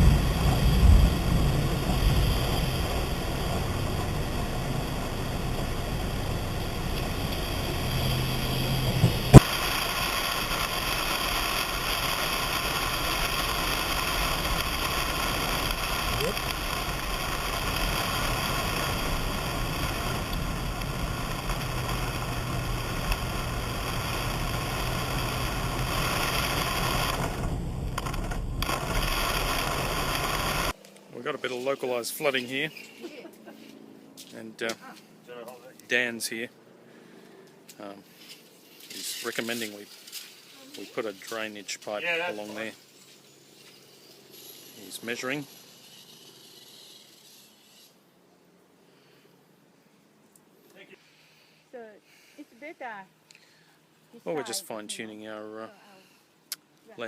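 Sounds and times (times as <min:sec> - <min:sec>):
car engine and road rumble: 0:00.0 - 0:31.8.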